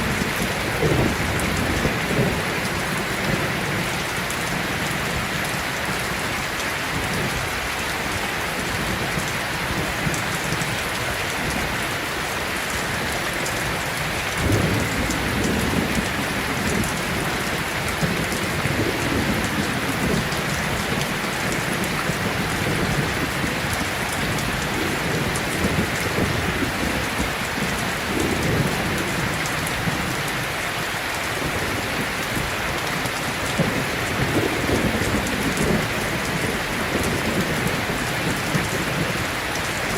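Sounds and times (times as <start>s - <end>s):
rolling thunder: 0.0s - 5.4s, 14.4s - 30.1s, 33.6s - 39.3s
heavy rain: 0.0s - 39.9s.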